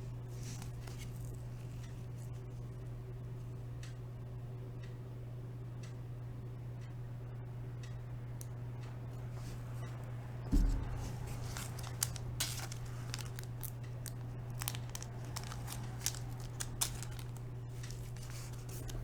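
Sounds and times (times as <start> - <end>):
steady low hum: 0.0 - 19.0
cards and plastic holders rustling: 0.3 - 2.1, 9.3 - 19.0
dull bump: 10.5 - 12.8.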